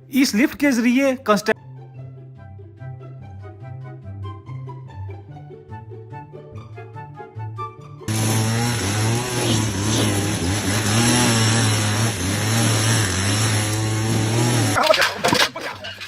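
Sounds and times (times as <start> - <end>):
engine running loud: 8.1 - 14.8.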